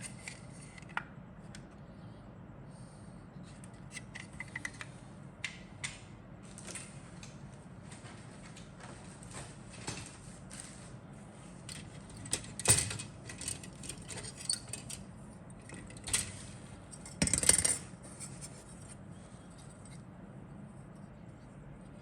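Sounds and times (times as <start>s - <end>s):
plastic parts clicking and clattering: 11.7s - 15.0s, 15.7s - 16.4s.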